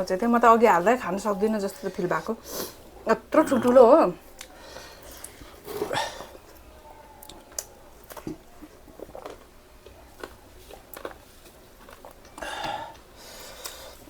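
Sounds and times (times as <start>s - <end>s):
chewing clicks and smacks: 6.4s - 13.8s.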